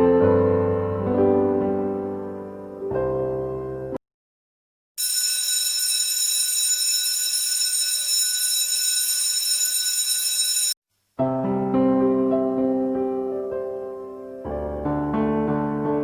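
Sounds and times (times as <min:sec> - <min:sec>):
piano music: 0:00.0 - 0:04.0, 0:11.2 - 0:16.0
buzzing alarm tone: 0:05.0 - 0:10.8.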